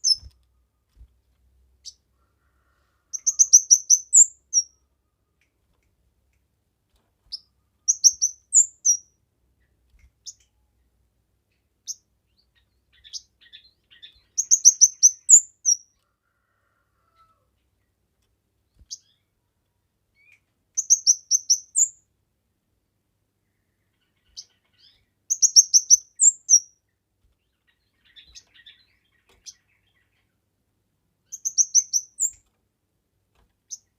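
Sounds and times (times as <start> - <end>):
songbird singing high chirps: 0.0 - 0.4, 3.2 - 4.8, 7.3 - 9.1, 11.8 - 15.9, 20.2 - 22.0, 24.0 - 26.8, 27.5 - 30.3, 31.3 - 32.4.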